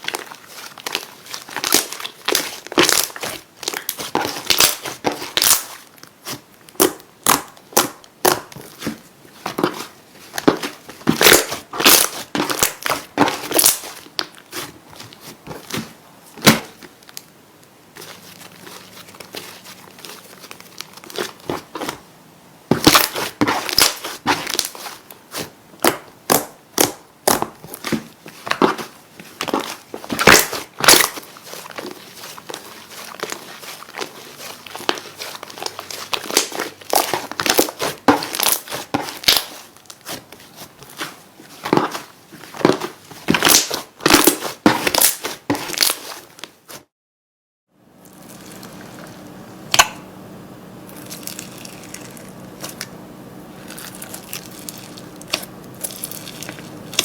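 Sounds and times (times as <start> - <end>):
slime crackling and popping: 0.0 - 8.8, 9.6 - 14.6, 22.7 - 46.6, 50.9 - 52.9, 53.6 - 57.0.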